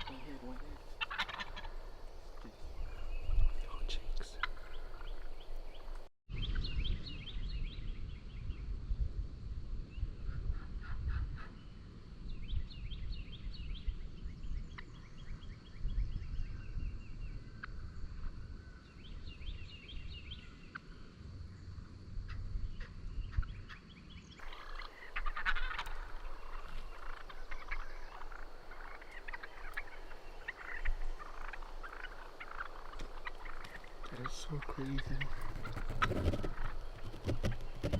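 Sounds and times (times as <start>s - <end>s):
turkeys gobbling: 0.0s - 3.0s, 4.2s - 6.0s, 24.4s - 37.9s.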